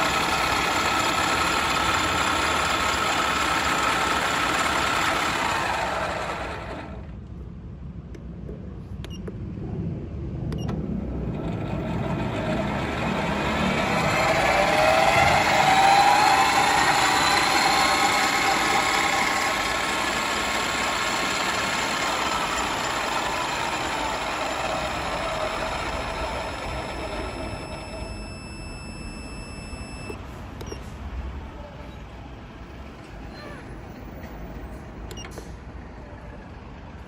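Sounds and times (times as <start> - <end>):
lathe motor whine with gear noise: 0.0 - 7.1, 11.2 - 30.2.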